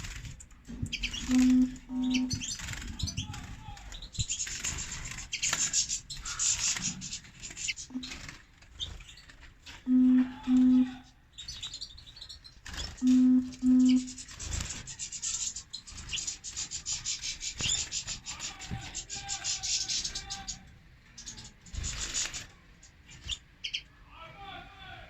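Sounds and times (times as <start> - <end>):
goldfinches chirping: 0.0 - 3.3, 3.9 - 18.3
low double beep: 1.3 - 2.3, 9.9 - 10.9, 13.0 - 14.1.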